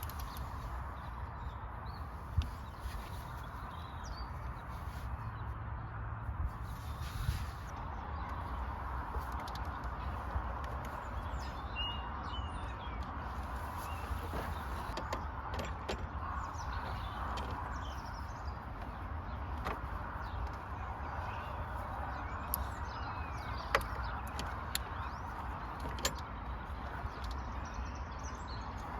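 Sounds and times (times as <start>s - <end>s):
birds chirping: 0.0s - 28.9s
sharp clicks and knocks: 8.2s - 11.3s, 14.2s - 18.0s, 18.8s - 20.8s, 23.4s - 27.6s.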